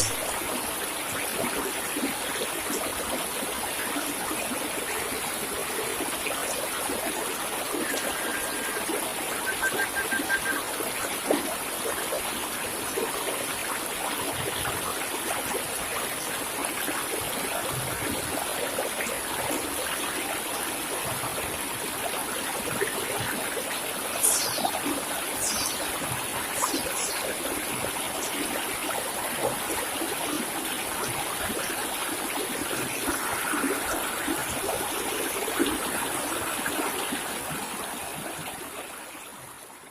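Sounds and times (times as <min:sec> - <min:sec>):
stream trickling: 0:00.0 - 0:39.9
bird chirps: 0:09.4 - 0:10.6.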